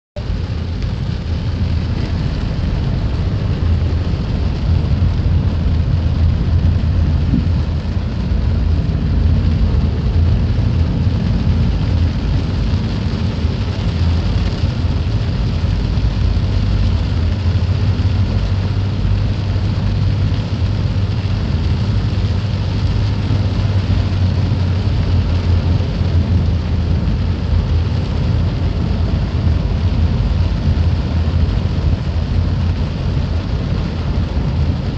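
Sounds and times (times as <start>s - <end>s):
deep rumble: 0.2s - 34.9s
steady rain: 0.2s - 34.9s.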